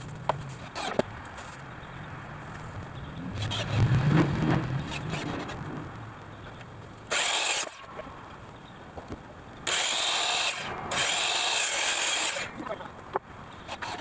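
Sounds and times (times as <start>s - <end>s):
power tool working wood: 7.1s - 8.1s, 9.7s - 12.6s, 13.7s - 14.0s.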